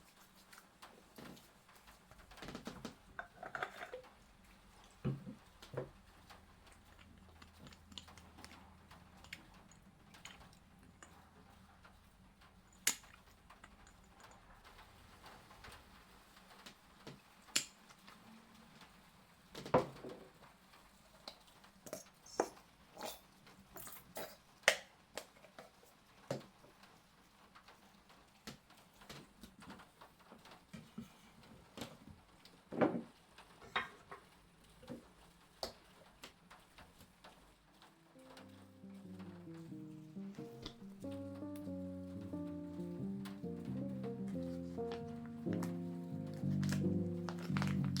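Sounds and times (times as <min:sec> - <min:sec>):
objects clicking and knocking: 0:02.3 - 0:04.2, 0:04.8 - 0:11.6, 0:12.4 - 0:14.6, 0:44.3 - 0:48.0.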